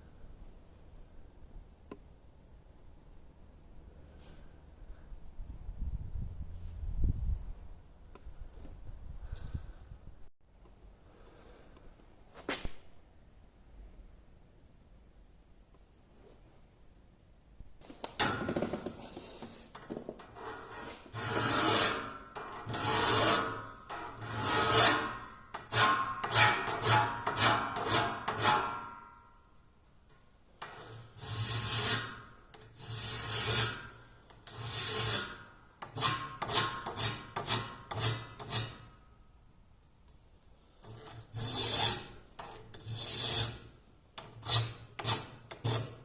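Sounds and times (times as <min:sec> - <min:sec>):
hand file rasping on saw blade: 0:20.4 - 0:28.9, 0:30.7 - 0:38.9, 0:40.8 - 0:46.0.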